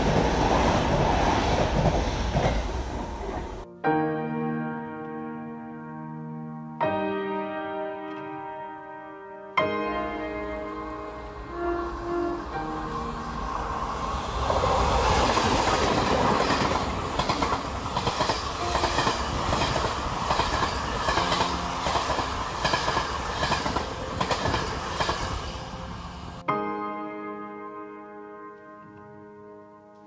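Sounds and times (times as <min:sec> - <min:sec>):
train running noise: 0:00.0 - 0:03.6, 0:11.3 - 0:26.4
wheels clacking over rail joints: 0:14.4 - 0:25.5.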